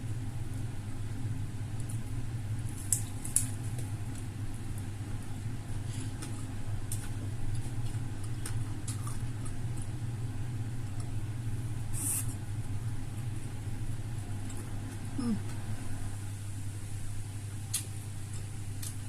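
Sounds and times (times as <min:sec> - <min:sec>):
steady low hum: 0:00.0 - 0:19.0
smacking sounds of eating: 0:17.6 - 0:19.0.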